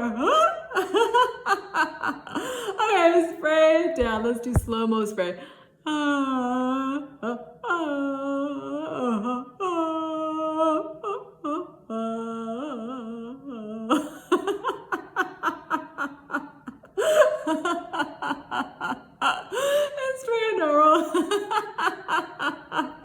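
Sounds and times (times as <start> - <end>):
woman laughing: 4.0 - 4.8.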